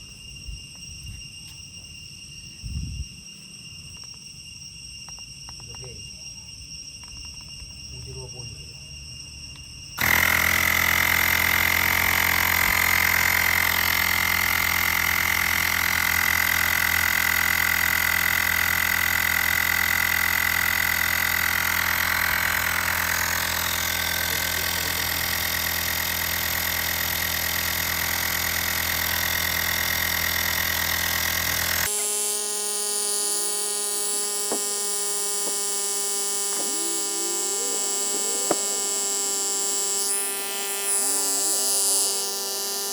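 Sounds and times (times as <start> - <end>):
air compressor motor buzzing: 10.0 - 42.9.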